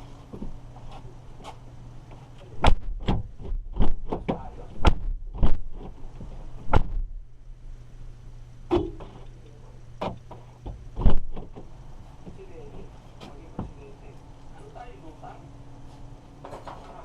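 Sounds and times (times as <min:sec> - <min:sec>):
steady low hum: 0:00.0 - 0:17.0
clunks and knocks on car door: 0:02.6 - 0:05.9, 0:06.7 - 0:07.1, 0:10.0 - 0:11.7.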